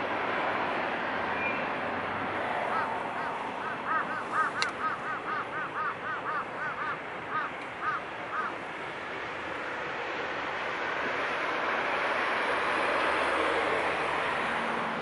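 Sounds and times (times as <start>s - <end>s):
bird honking calls: 2.6s - 8.6s.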